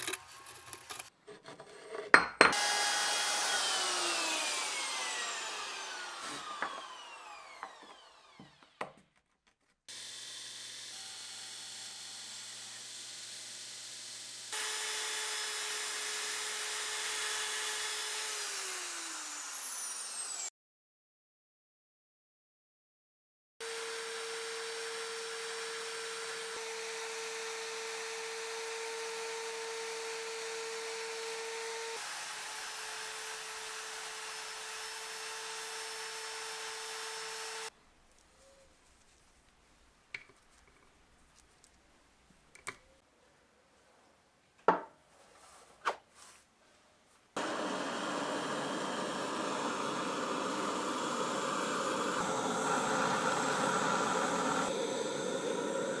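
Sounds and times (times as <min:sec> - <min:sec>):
power tool humming: 0:02.5 - 0:08.7, 0:09.9 - 0:20.5, 0:23.6 - 0:37.7, 0:47.4 - 0:56.0.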